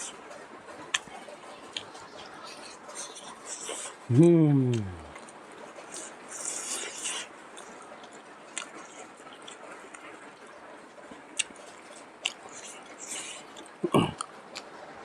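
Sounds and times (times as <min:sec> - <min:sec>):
person chewing food: 0:02.5 - 0:05.3, 0:05.9 - 0:10.2, 0:11.4 - 0:14.7
mouth and teeth clicks: 0:02.6 - 0:05.2.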